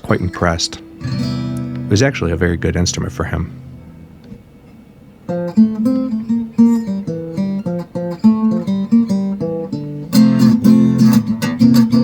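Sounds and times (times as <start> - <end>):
acoustic guitar fingerpicking and strumming: 0.0 - 12.0.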